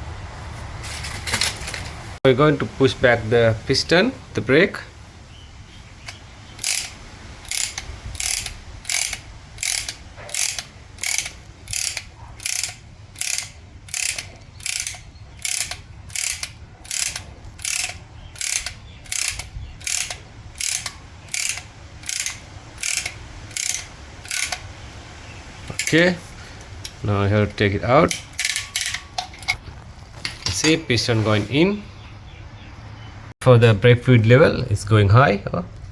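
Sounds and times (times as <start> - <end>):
ratchet clicking: 6.0 - 24.7, 25.7 - 27.0, 28.0 - 29.6.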